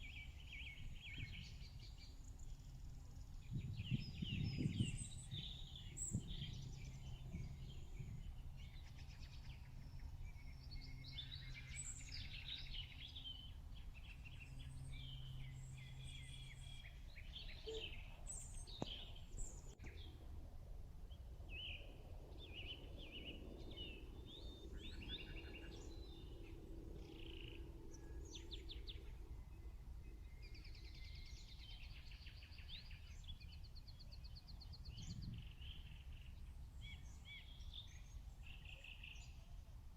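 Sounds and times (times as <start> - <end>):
birds chirping and trilling: 0.0 - 20.1, 21.5 - 39.6
faint low rumble: 0.0 - 39.9.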